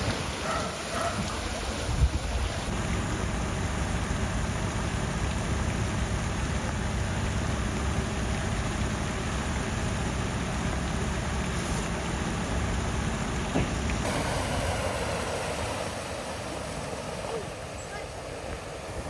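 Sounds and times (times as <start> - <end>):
wind buffeting microphone: 0.0 - 2.8, 14.0 - 19.0
water rushing: 0.0 - 19.0.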